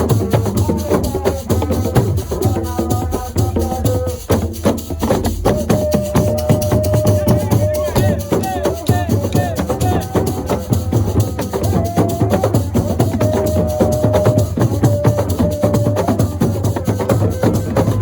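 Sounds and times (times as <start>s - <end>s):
fast drum rhythm: 0.0s - 18.0s
wood-block strikes: 0.0s - 18.0s.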